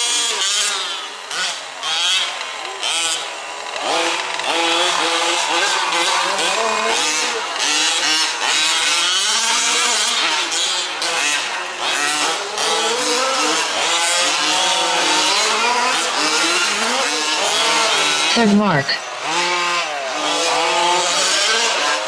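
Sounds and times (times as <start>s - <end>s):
small two-stroke engines revving: 0.0s - 22.0s.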